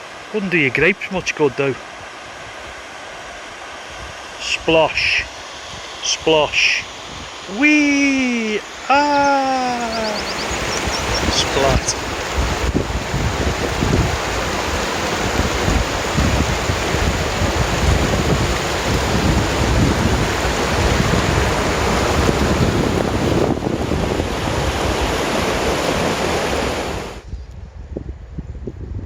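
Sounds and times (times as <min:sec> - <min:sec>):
waterfall rushing: 0:00.0 - 0:27.2
wind buffeting microphone: 0:06.9 - 0:07.6, 0:09.7 - 0:29.0.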